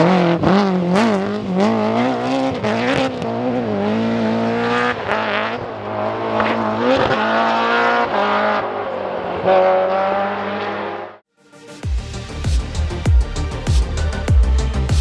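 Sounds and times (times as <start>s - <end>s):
rally car engine running hard: 0.0s - 9.2s.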